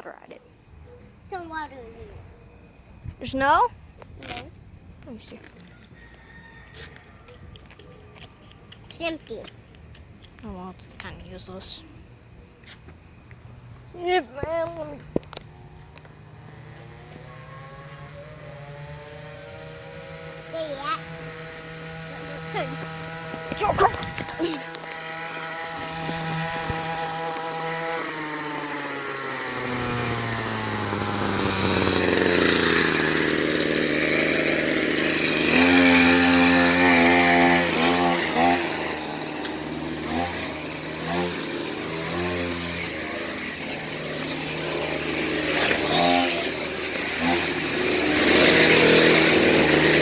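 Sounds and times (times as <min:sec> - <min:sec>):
motorcycle engine revving: 0:14.0 - 0:50.0.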